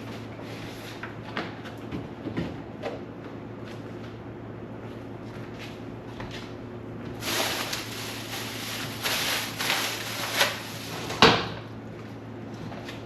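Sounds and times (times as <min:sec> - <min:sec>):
steady low hum: 0:03.2 - 0:13.0
food containers rustling and clattering: 0:07.2 - 0:11.3.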